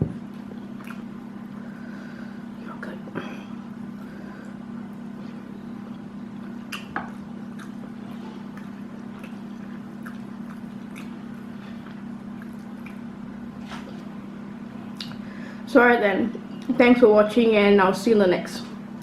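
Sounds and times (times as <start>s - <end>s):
steady low hum: 0.0s - 19.0s
wet mouth clicks while chewing: 6.7s - 7.8s, 8.5s - 11.2s, 11.8s - 13.0s.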